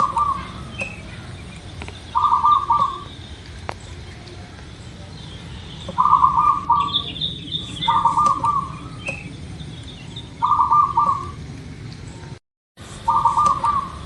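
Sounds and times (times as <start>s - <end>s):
dove cooing: 0.0s - 1.0s, 2.1s - 3.2s, 5.8s - 9.6s, 10.3s - 11.5s, 13.0s - 14.0s
small bird chirping: 0.0s - 11.4s, 13.0s - 14.0s.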